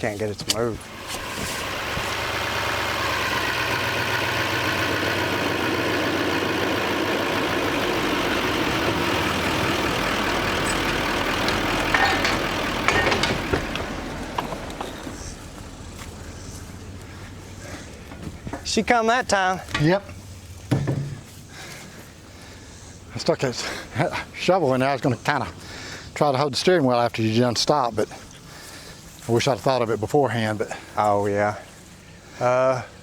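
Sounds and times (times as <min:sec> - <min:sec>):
vehicle engine under load: 0:00.0 - 0:24.5
sharp metal clanks: 0:10.6 - 0:15.0.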